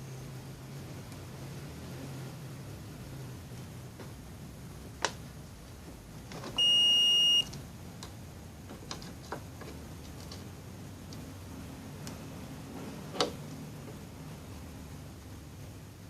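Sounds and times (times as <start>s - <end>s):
multimeter beep: 6.6s - 7.5s.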